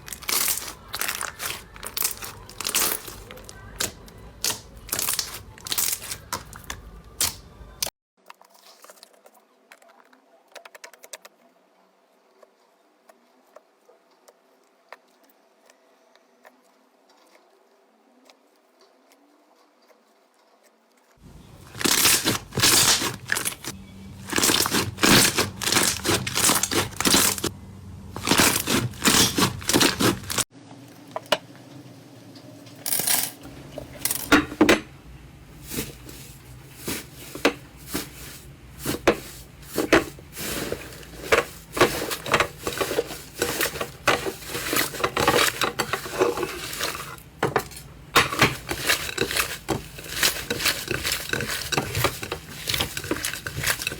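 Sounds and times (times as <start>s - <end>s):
slime crackling and popping: 0.0s - 7.4s, 21.6s - 27.5s, 28.2s - 30.5s.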